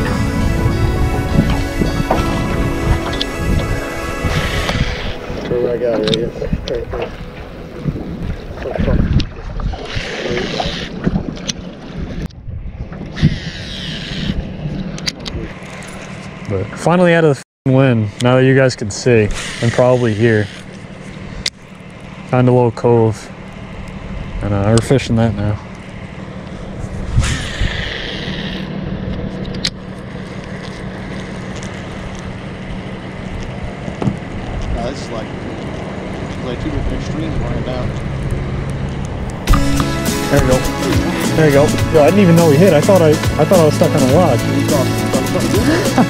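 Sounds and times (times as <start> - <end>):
strong wind buffeting microphone: 0.0 - 13.6, 26.6 - 29.4
low rumble: 0.0 - 16.3, 23.3 - 46.0.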